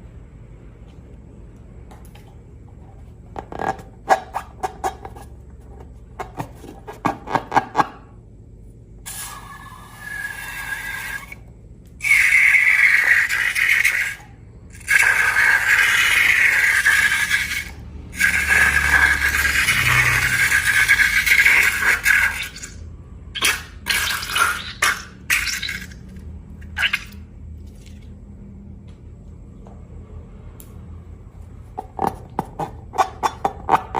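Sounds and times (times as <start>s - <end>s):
wet slime hissing: 23.4s - 26.0s.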